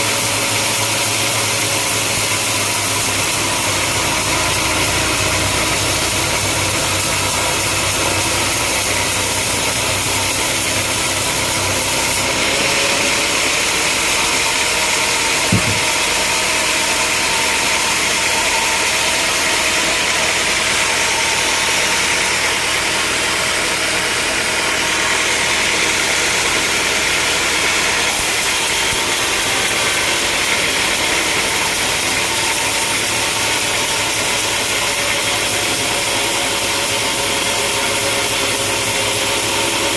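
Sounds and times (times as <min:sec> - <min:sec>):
sawmill machinery running: 0:00.0 - 0:39.9
sharp knock: 0:15.4 - 0:16.3.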